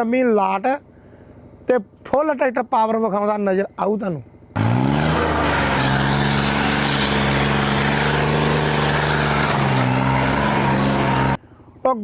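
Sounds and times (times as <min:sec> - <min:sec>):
tractor diesel engine droning: 0:04.5 - 0:11.4.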